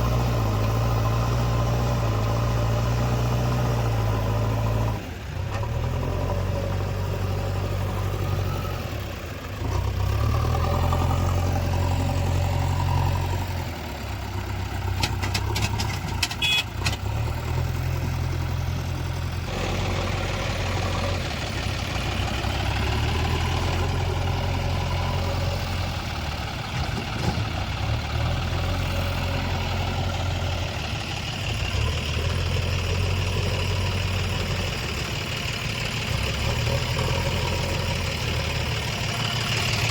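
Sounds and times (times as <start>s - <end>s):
diesel engine of digger: 0.0s - 39.9s
sharp clicks and clanks: 14.9s - 17.1s.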